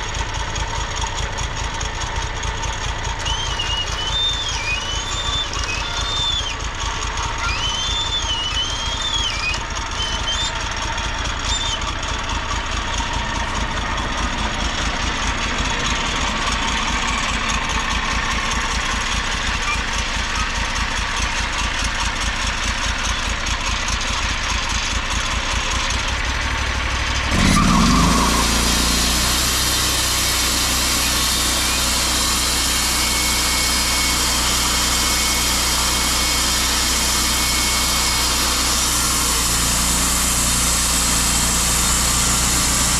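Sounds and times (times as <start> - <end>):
engine idling: 0.0 - 42.9.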